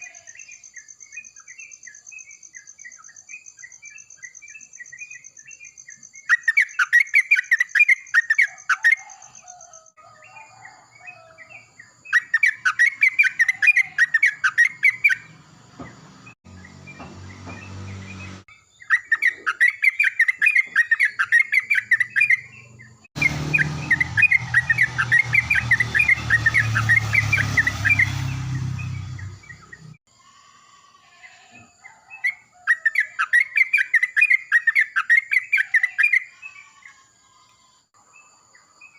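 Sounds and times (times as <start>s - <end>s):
faint insect tone: 0.0s - 6.9s, 30.1s - 32.6s.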